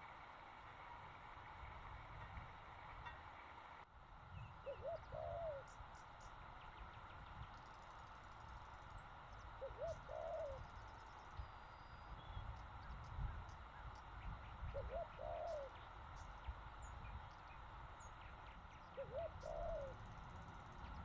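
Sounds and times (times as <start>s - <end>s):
dove cooing: 4.6s - 5.8s, 9.4s - 10.8s, 14.6s - 16.0s, 18.6s - 20.3s.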